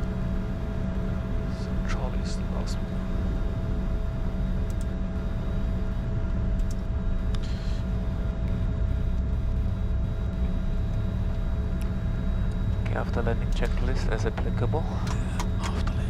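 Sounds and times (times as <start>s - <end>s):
jet engines idling: 0.0s - 16.0s
steady hum: 0.0s - 16.0s.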